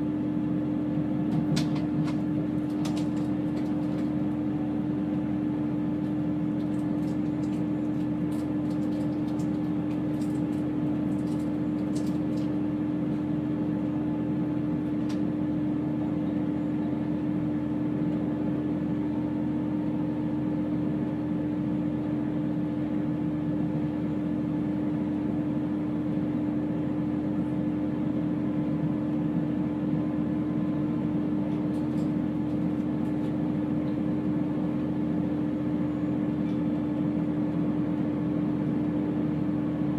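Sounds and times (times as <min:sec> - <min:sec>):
train interior hum: 0:00.0 - 0:18.4.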